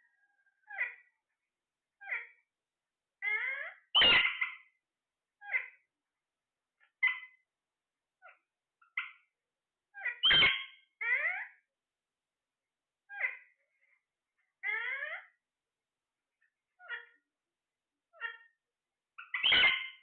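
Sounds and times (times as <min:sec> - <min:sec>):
parrot squawking: 0:00.2 - 0:01.1, 0:02.0 - 0:02.4, 0:03.2 - 0:04.8, 0:05.4 - 0:05.9, 0:06.9 - 0:07.4, 0:08.2 - 0:09.3, 0:09.9 - 0:11.6, 0:13.1 - 0:13.6, 0:14.6 - 0:15.4, 0:16.7 - 0:17.3, 0:18.1 - 0:18.6, 0:19.2 - 0:20.0.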